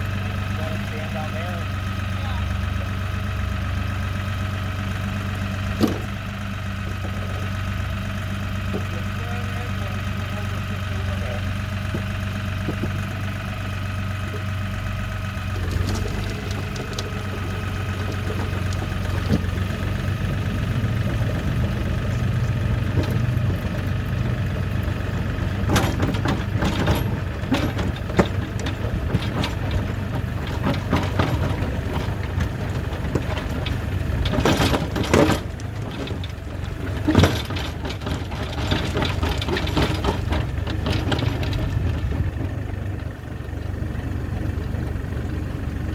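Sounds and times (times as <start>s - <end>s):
tractor diesel engine running: 0.0s - 45.9s
metallic knocks and clanks: 5.5s - 9.5s, 15.3s - 43.1s.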